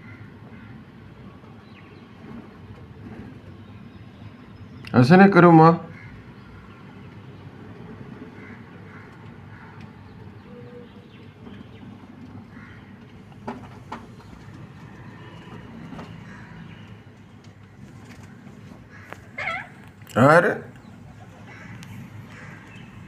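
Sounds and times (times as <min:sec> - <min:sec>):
parrot chirping: 0:19.4 - 0:19.8.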